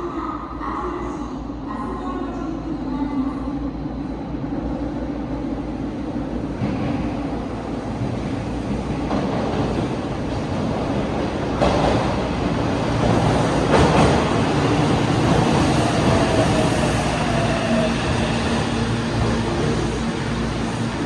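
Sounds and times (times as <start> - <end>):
train wheels rumbling on rail: 5.5 - 21.0.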